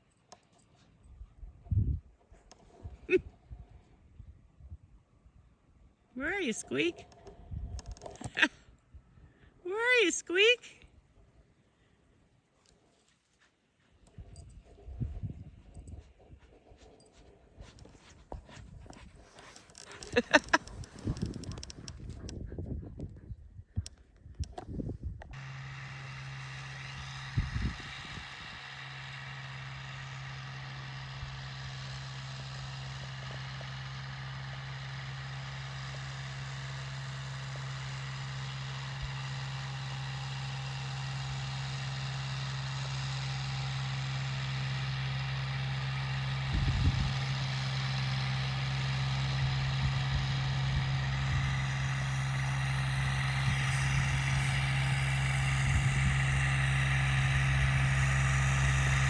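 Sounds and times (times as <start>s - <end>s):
engine idling: 25.4s - 59.0s.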